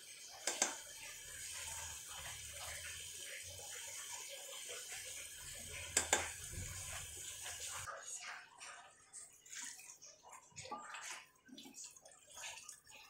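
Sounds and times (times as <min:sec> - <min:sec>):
meat sizzling and bubbling: 0:00.0 - 0:07.9.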